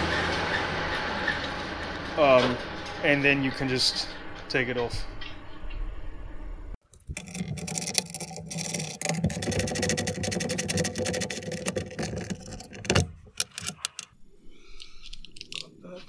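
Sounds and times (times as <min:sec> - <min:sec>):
metallic clicks and knocks: 0:06.8 - 0:14.1
power tool rattling: 0:06.8 - 0:14.1.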